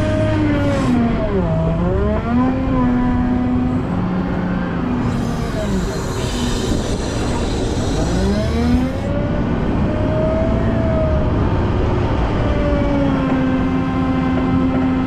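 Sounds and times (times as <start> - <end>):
diesel engine working: 0.0 - 15.0
high hiss: 5.0 - 9.1.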